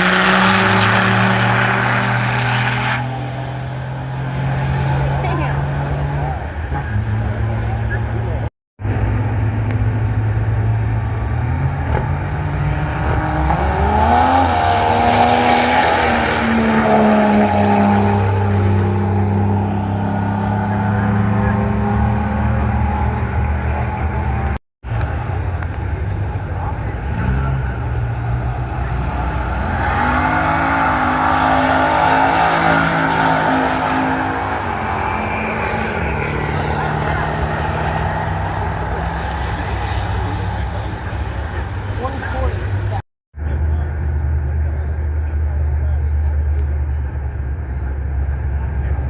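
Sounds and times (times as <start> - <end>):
truck engine rumbling and accelerating: 0.0 - 49.0.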